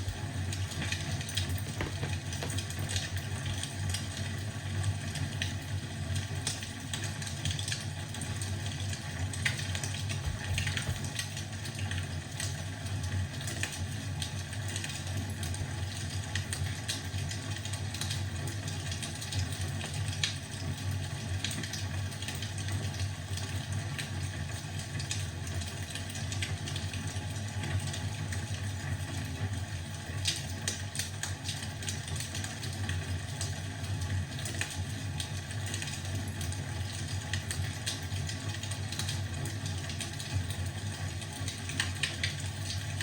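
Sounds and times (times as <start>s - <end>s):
wood fire crackling: 0.0s - 5.7s, 8.7s - 12.4s.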